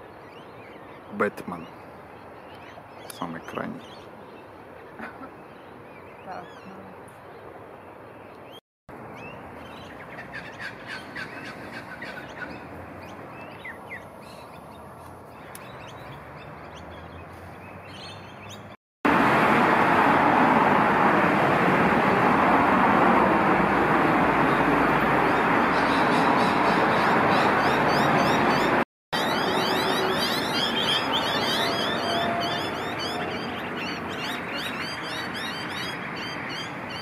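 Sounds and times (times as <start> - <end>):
birds downward-sliding chirps: 0.0 - 18.8, 24.4 - 37.0
loud steady rushing noise: 19.1 - 34.2.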